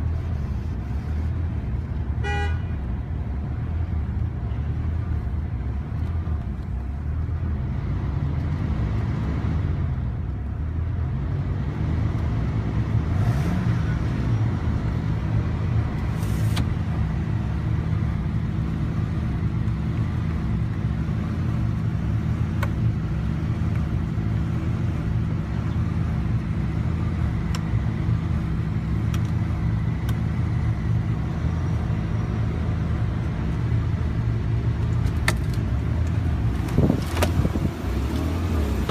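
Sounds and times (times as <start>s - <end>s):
car engine idling: 14.4s - 38.9s.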